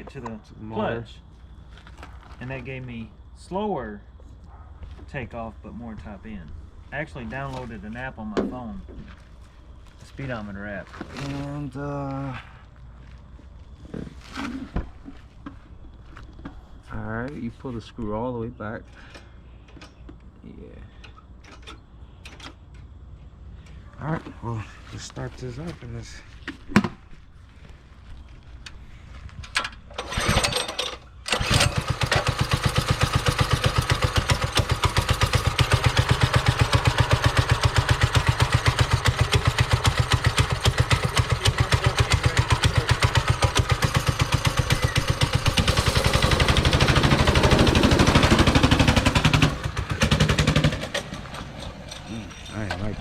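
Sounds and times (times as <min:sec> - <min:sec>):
small engine starting and running: 0:29.9 - 0:52.8.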